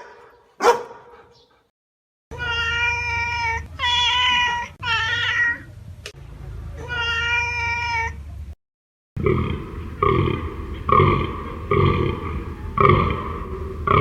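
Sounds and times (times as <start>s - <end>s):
cat meowing: 2.3s - 5.7s, 6.8s - 8.2s.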